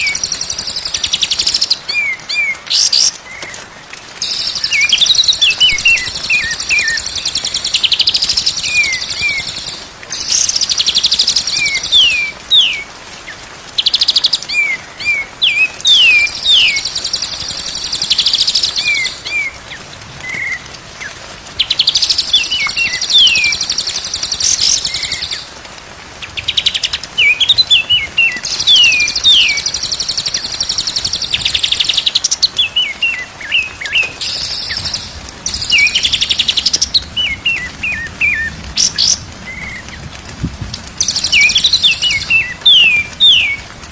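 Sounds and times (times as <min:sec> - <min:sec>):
songbird buzzy trills and whistles: 0:04.2 - 0:12.8, 0:26.5 - 0:39.8.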